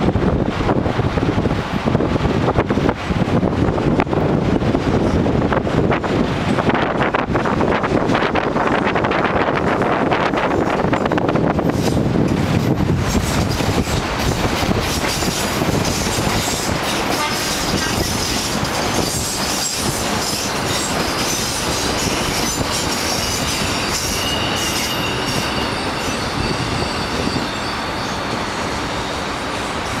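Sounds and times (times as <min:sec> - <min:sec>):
train wheels rumbling on rails: 0:00.0 - 0:30.0
high wheel squeal: 0:14.9 - 0:30.0.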